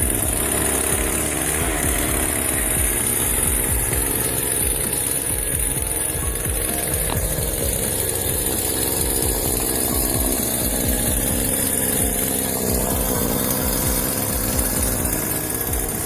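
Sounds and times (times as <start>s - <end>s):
motor running with low pulsing: 0.0s - 16.0s.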